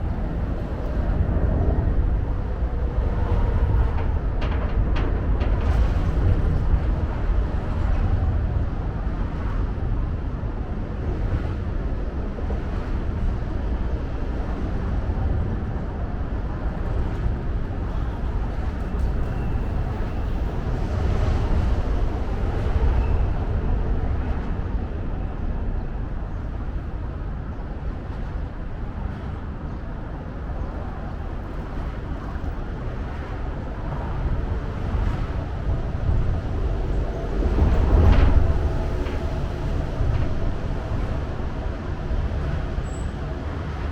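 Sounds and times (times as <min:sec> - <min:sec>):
low rumble of traffic: 0:00.0 - 0:43.9.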